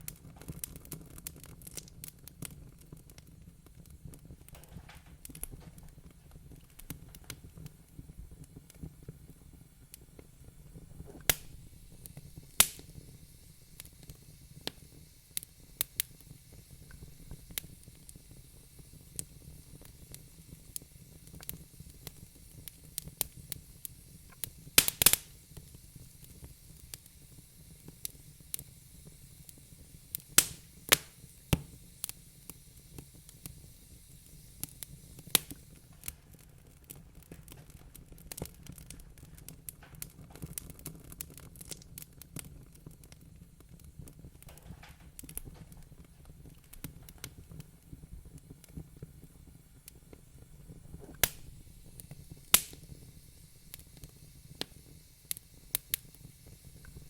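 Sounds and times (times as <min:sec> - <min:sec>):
fire pops: 0:00.0 - 0:57.0
wood fire crackling: 0:00.0 - 0:57.0.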